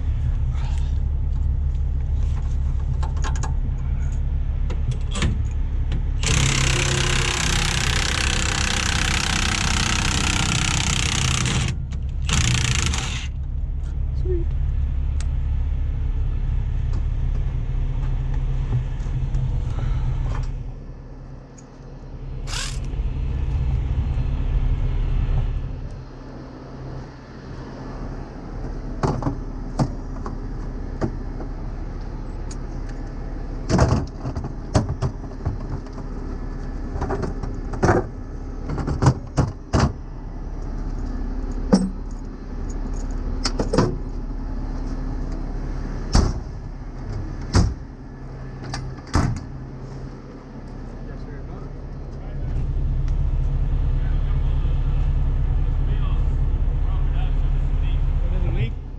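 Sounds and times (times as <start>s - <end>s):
diesel truck engine rumbling: 0.0s - 58.9s
metal chains clanking and rattling: 40.9s - 43.8s.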